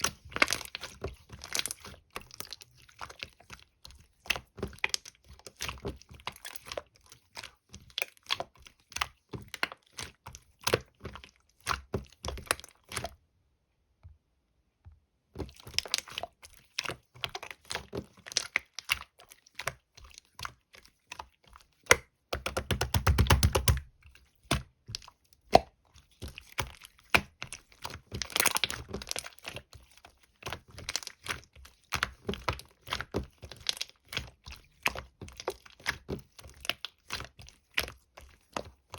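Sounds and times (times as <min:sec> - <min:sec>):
slime squished by hand: 0:15.4 - 0:38.9.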